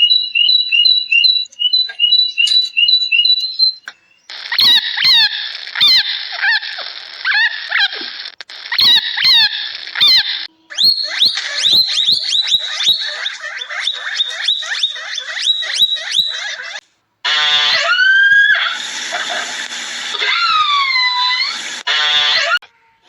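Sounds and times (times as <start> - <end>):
short high animal chirps: 0.0 - 16.8.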